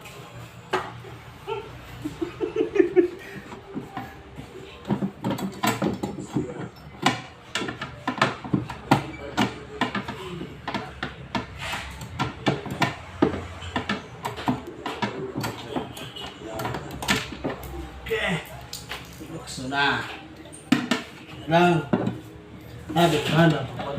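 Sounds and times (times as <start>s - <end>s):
hand tools clicking and knocking: 4.7s - 17.8s.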